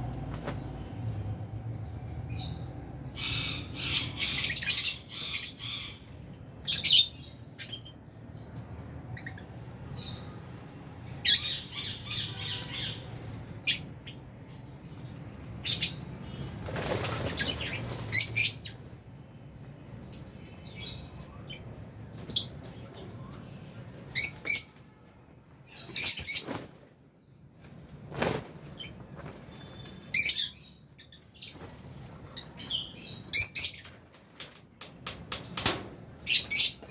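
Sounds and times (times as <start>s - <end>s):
lovebirds chirping and squawking: 1.7s - 24.8s, 25.7s - 26.7s, 28.6s - 36.9s.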